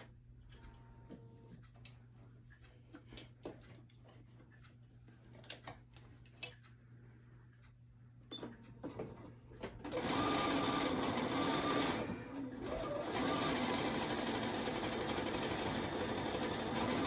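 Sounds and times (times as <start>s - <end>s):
sewing machine stitching: 9.7s - 17.0s.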